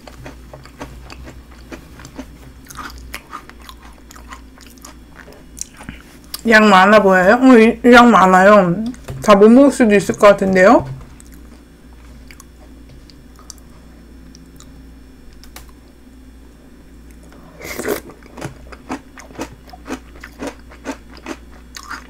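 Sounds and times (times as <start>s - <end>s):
crunchy snack chewing: 0.0s - 6.4s, 17.1s - 22.0s.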